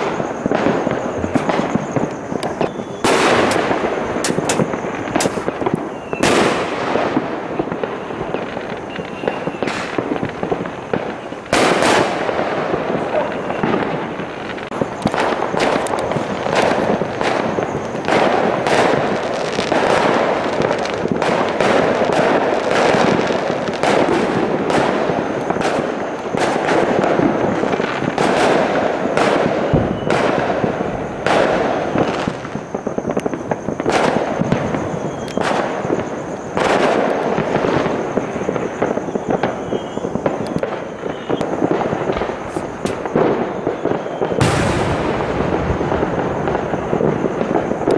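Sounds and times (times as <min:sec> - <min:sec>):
fireworks cracks and bangs: 0:00.0 - 0:47.9.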